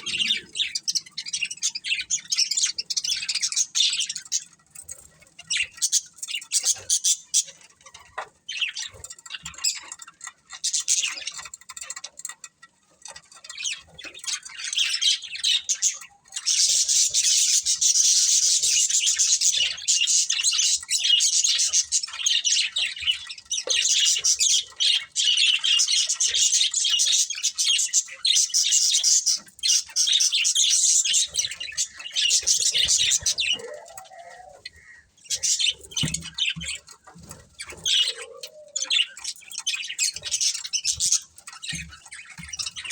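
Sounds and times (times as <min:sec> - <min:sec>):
budgerigars chirping: 0:00.0 - 0:07.7, 0:13.5 - 0:42.9.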